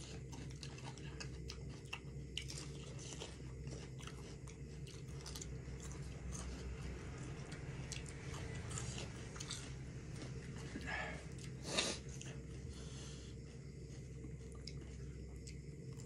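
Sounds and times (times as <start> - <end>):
person chewing food: 0.0 - 16.0
steady low hum: 0.0 - 16.0.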